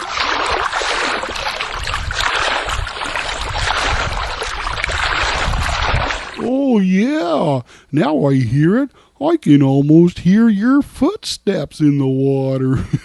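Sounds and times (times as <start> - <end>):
pool water sloshing and splashing: 0.0 - 6.7.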